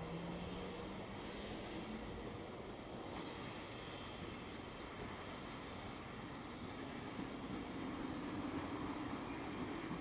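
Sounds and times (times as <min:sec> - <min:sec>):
distant train rumble: 0:00.0 - 0:10.0.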